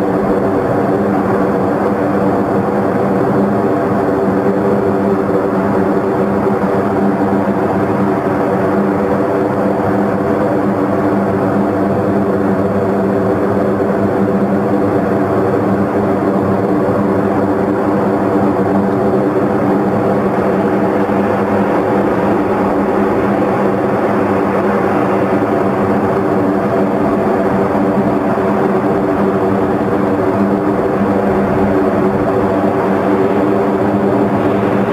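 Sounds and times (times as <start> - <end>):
turboprop engines droning: 0.0 - 34.9.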